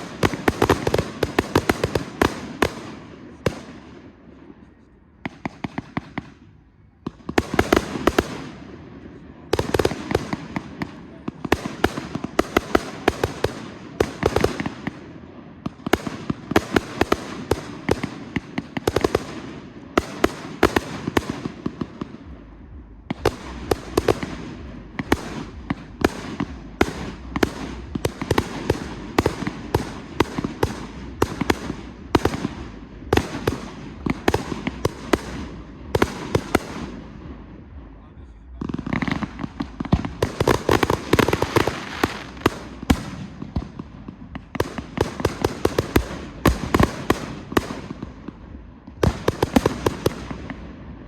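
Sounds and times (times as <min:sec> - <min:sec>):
firework crackle: 0:00.0 - 0:03.8, 0:38.0 - 0:51.0
firework bursts and bangs: 0:00.0 - 0:51.0.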